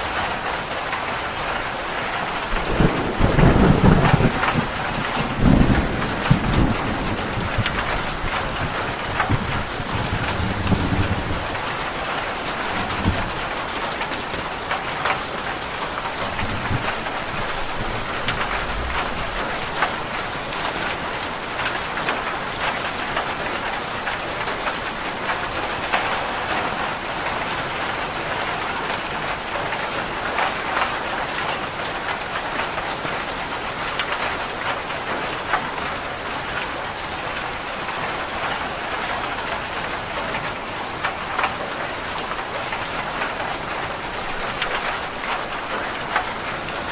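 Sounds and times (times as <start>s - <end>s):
heavy rain on a roof: 0.0s - 46.9s
distant thunder rumble: 2.5s - 14.0s, 15.9s - 20.3s.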